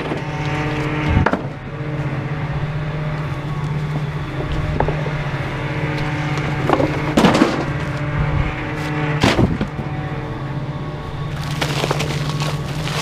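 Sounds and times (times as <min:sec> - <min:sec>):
garbage truck engine running: 0:00.0 - 0:13.0
loud cracking impacts: 0:11.4 - 0:13.0.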